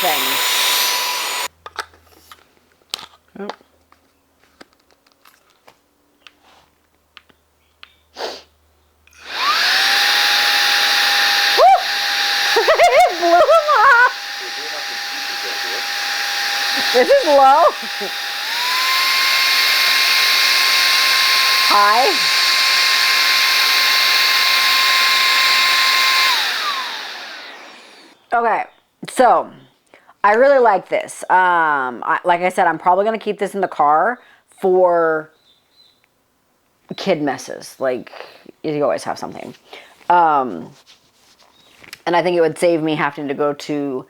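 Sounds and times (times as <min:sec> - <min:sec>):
handheld vacuum motor whining: 0:00.0 - 0:01.5, 0:09.1 - 0:28.2.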